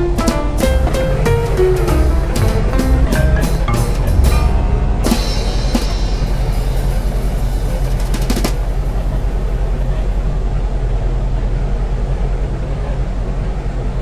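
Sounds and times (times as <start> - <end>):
machine rumbling: 0.0 - 10.7.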